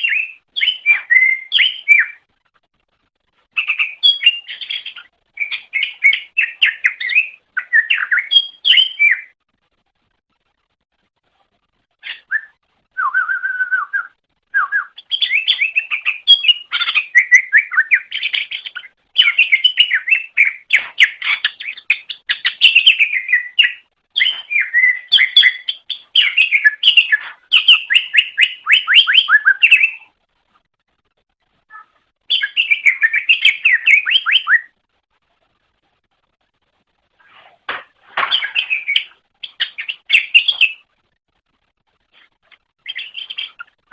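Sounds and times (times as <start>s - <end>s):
bird chirping and whistling song: 0.0s - 2.3s, 3.6s - 9.4s, 12.0s - 30.1s, 31.7s - 34.8s, 38.2s - 40.9s, 42.8s - 43.8s.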